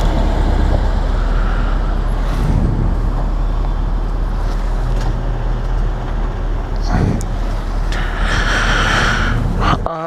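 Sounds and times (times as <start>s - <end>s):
wind noise on microphone: 1.9s - 4.4s, 6.8s - 9.8s.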